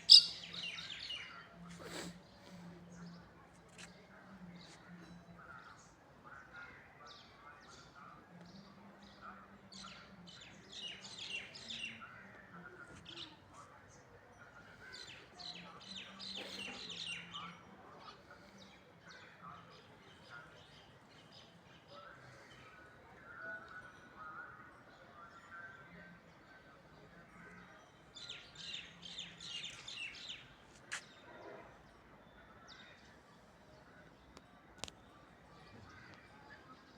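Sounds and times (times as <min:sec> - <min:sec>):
birds chirping sharply: 0:00.0 - 0:01.4
birds chirping: 0:00.0 - 0:05.9
soft scattered bird calls: 0:00.0 - 0:36.9.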